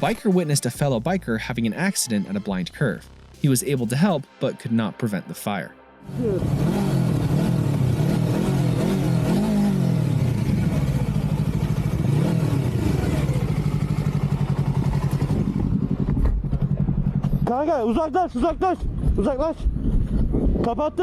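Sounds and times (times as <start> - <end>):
motorcycle engine running: 6.1 - 19.2.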